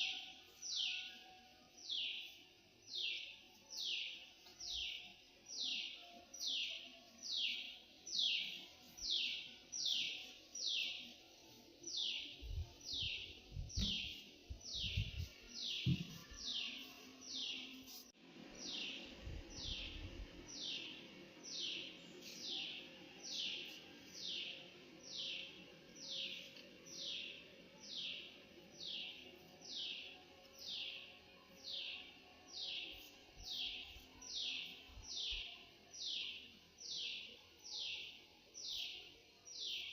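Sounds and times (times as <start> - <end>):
low thumps on microphone: 13.6 - 14.1, 15.8 - 16.2.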